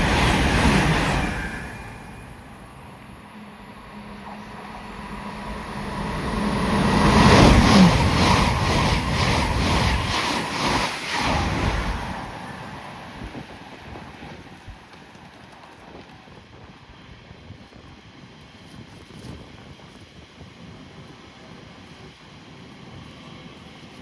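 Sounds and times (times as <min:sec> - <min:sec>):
train passing at speed: 0:00.0 - 0:18.5.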